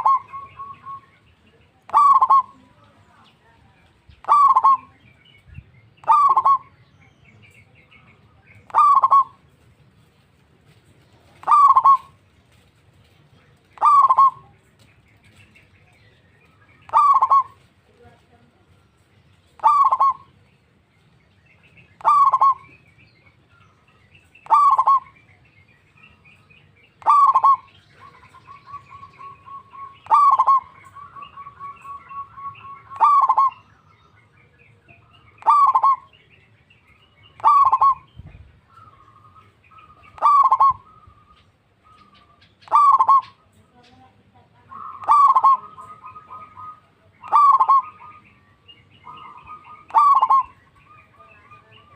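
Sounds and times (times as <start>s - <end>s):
dove cooing: 0.0s - 1.0s, 1.9s - 2.8s, 4.2s - 5.2s, 6.0s - 6.8s, 8.5s - 9.6s, 11.2s - 15.6s, 16.8s - 17.7s, 19.5s - 20.4s, 22.0s - 22.8s, 24.4s - 25.3s, 27.0s - 33.8s, 34.8s - 36.3s, 37.2s - 43.6s, 44.6s - 51.9s
fast pulsing bird notes: 0.0s - 1.0s, 1.9s - 2.6s, 4.1s - 4.9s, 8.7s - 9.4s, 11.4s - 12.2s, 13.8s - 14.4s, 16.6s - 17.6s, 19.6s - 20.3s, 22.0s - 22.7s, 24.4s - 25.2s, 26.0s - 33.9s, 35.2s - 36.2s, 37.0s - 38.2s, 38.8s - 43.4s, 44.7s - 51.2s.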